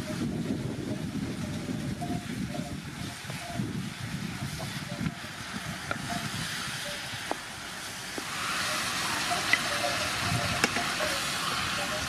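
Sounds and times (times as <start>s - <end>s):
stir-fry sizzling in a frying pan: 4.4s - 12.0s.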